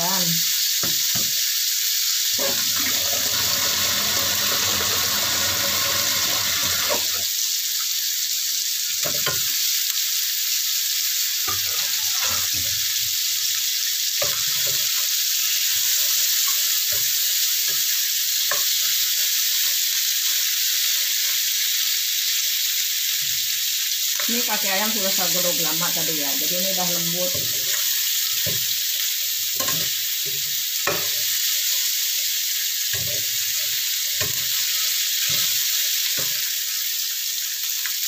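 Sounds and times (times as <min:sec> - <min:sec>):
food sizzling in frying pan: 0:00.0 - 0:38.0.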